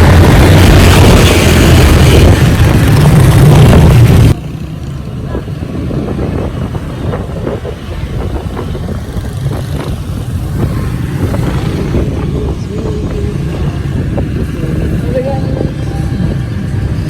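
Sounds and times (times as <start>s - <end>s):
road noise: 0.0s - 17.0s
scooter engine: 0.0s - 17.0s
wind buffeting the microphone: 5.0s - 17.0s.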